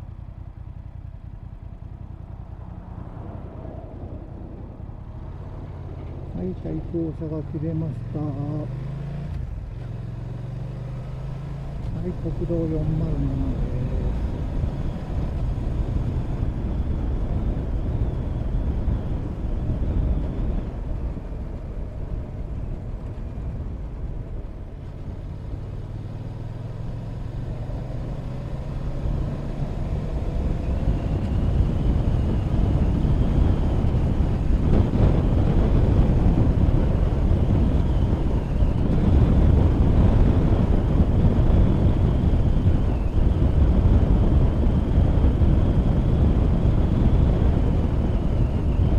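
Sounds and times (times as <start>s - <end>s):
motorcycle engine running: 0.0s - 48.9s
wind rush on microphone: 2.2s - 48.9s.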